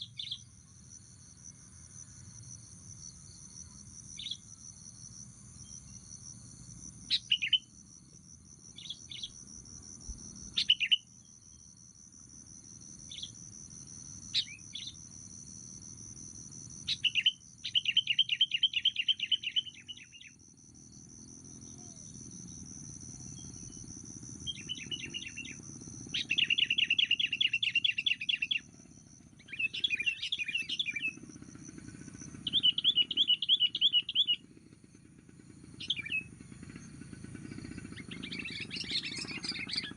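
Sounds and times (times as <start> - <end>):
high insect drone: 0.0 - 39.9
bird chirps and chattering: 29.4 - 31.2, 32.4 - 34.4, 38.0 - 39.9.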